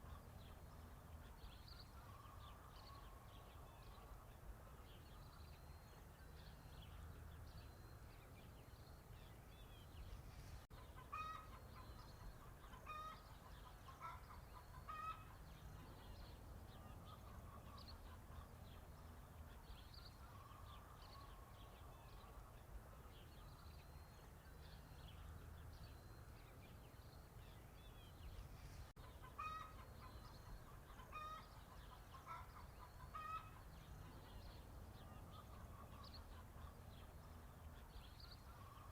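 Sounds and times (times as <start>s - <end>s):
small birds chirping: 0.0s - 38.9s
chickens clucking: 10.7s - 16.2s, 29.0s - 37.0s.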